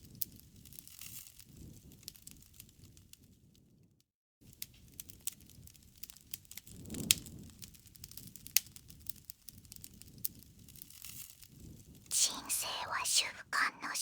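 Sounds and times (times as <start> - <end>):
loud pops from fire: 4.5 - 11.2
campfire crackling: 4.5 - 12.0.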